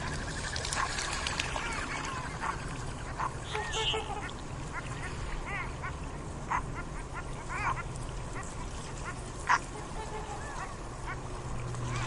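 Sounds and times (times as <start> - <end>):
high animal calls: 0.0 - 5.7.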